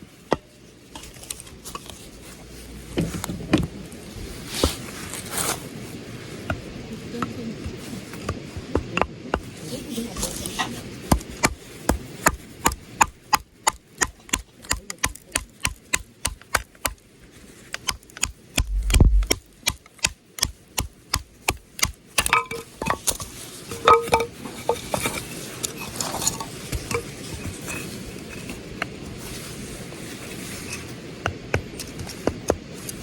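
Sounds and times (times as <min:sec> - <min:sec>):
heavy thud: 0:18.6 - 0:19.3.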